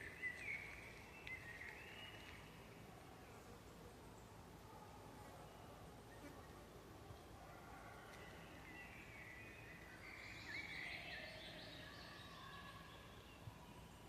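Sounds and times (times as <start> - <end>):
low steady background noise: 0.0 - 14.0
faint bird chirps and whistles: 7.6 - 14.0.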